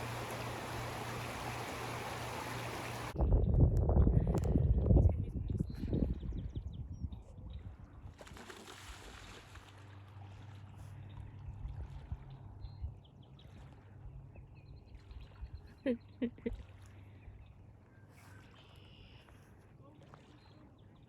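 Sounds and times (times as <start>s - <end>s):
waterfowl rising calls: 0.0s - 3.2s
low steady rumble: 0.0s - 5.6s.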